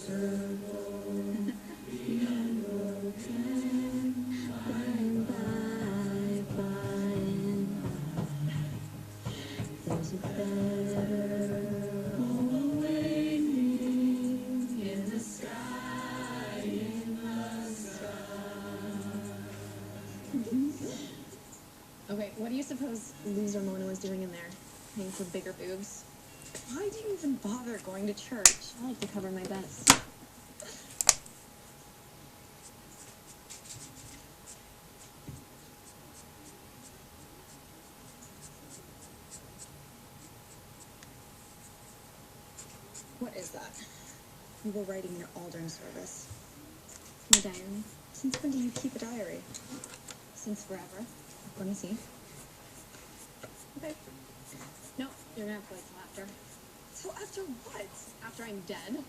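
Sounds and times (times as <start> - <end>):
choir singing sustained notes: 0.0 - 21.4
pen scratching on paper: 2.0 - 20.2, 32.7 - 42.0, 42.6 - 43.7, 50.5 - 58.8.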